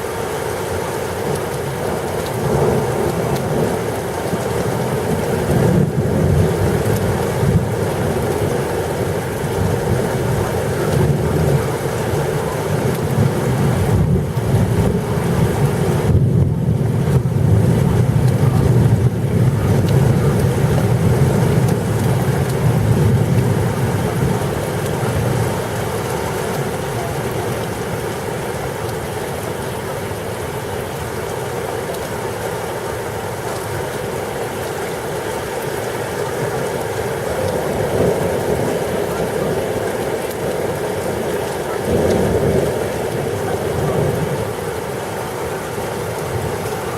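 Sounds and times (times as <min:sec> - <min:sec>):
rain and wind hiss: 0:00.0 - 0:46.9
low rumble of thunder: 0:02.3 - 0:28.2, 0:37.4 - 0:45.0.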